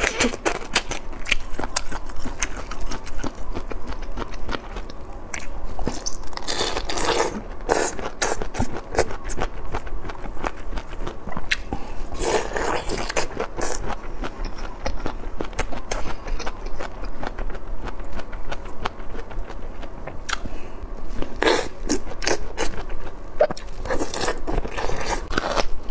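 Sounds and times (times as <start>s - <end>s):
crisp crunching and wet chewing: 0.0s - 25.9s.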